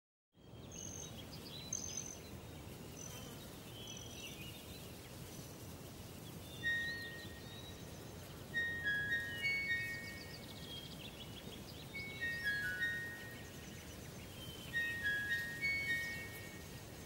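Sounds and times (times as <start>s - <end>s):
bird chirps: 0.4s - 5.4s, 6.2s - 17.0s
steady background hiss: 0.4s - 17.0s
whistled notes: 6.7s - 7.6s, 8.5s - 10.5s, 12.0s - 13.4s, 14.5s - 16.8s.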